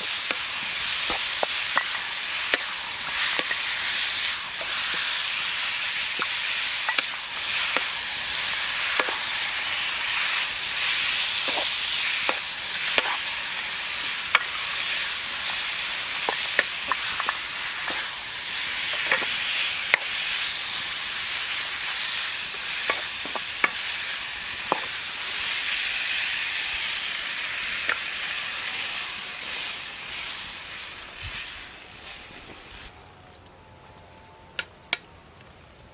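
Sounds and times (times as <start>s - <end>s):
food sizzling in a pan: 0.0s - 32.9s.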